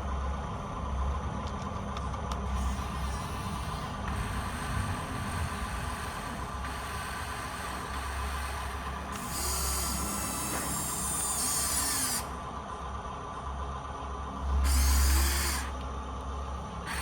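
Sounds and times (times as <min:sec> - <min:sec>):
small electric motors whirring: 0:02.5 - 0:12.4, 0:14.4 - 0:15.9, 0:16.8 - 0:17.0
high motor whine: 0:02.5 - 0:17.0.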